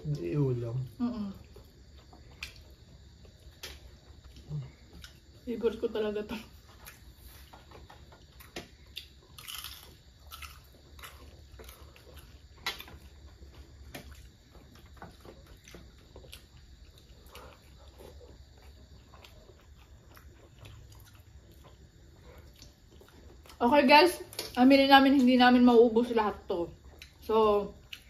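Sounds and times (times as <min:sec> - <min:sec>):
person chewing food: 0:01.4 - 0:05.4, 0:06.6 - 0:23.6, 0:26.8 - 0:27.2, 0:27.8 - 0:28.0.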